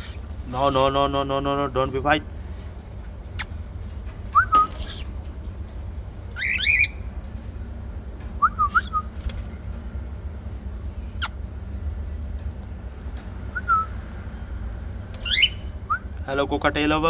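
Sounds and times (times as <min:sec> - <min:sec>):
cockatiel whistled chirps: 0:04.4 - 0:05.0, 0:08.4 - 0:09.1, 0:15.2 - 0:16.0.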